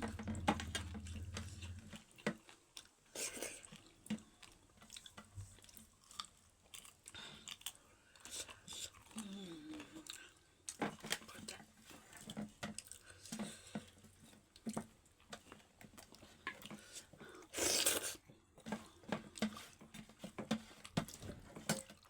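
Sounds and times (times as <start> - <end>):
breathy rush of noise: 0.0 - 2.0
wet chewing and lip smacks: 3.2 - 10.8.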